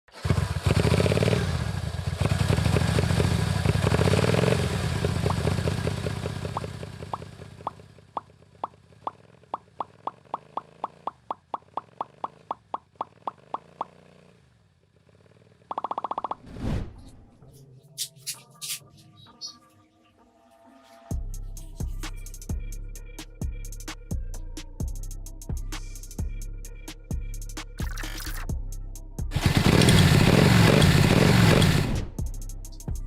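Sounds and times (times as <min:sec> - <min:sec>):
small engine running loudly: 0:00.1 - 0:15.9, 0:29.3 - 0:32.4.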